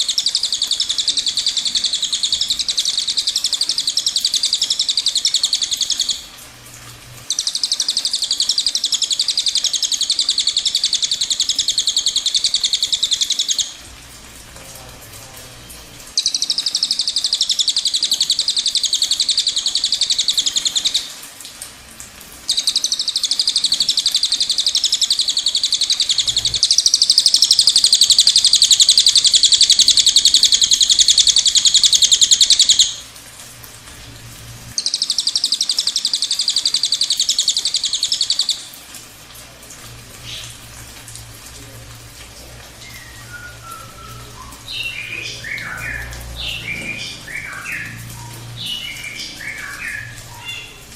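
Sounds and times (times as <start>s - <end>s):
faint bird chirps: 16.2s - 21.1s, 42.8s - 50.9s.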